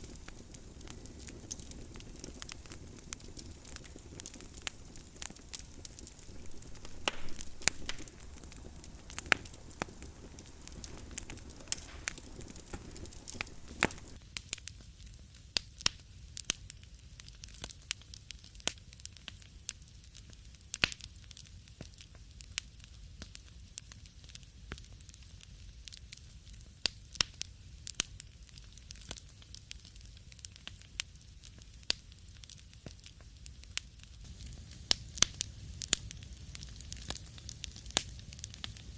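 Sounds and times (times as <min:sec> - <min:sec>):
fire hissing: 0:00.0 - 0:14.2, 0:34.2 - 0:38.9
wood fire popping and snapping: 0:00.0 - 0:14.8, 0:15.6 - 0:38.9.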